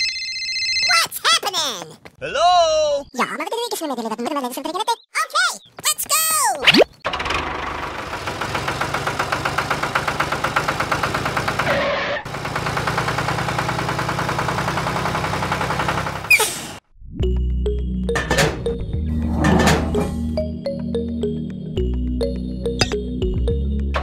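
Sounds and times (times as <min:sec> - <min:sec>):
tractor engine idling: 0:07.1 - 0:11.7, 0:12.3 - 0:16.3.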